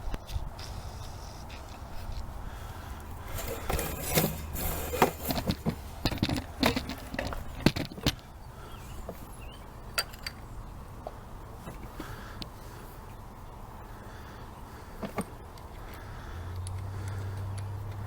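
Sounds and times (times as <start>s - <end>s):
metal parts and tools clinking: 3.3s - 8.0s.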